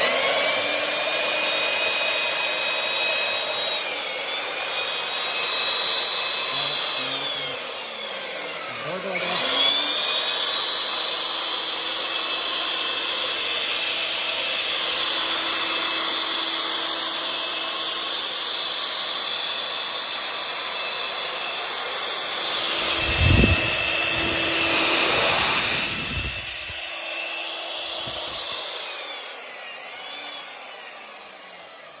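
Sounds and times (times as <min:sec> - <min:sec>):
pipe facer motor whine: 0:03.3 - 0:31.2
blades shaving pipe ends: 0:22.1 - 0:29.1.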